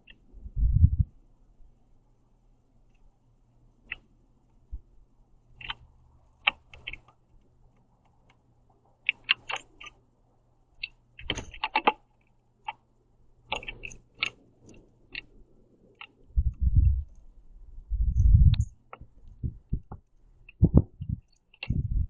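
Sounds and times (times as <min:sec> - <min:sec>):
birds pecking seeds: 0:05.4 - 0:10.0, 0:10.7 - 0:17.5.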